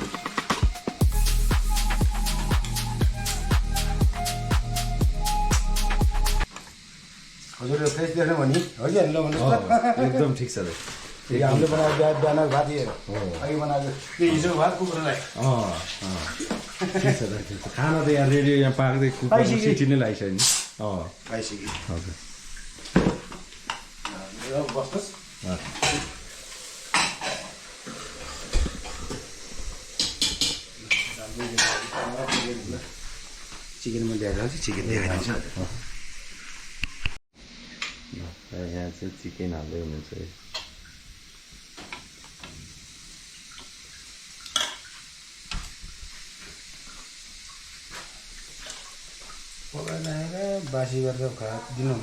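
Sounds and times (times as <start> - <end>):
chicken sizzling in a pan: 6.4 - 52.0
pots and utensils knocking: 30.0 - 32.6.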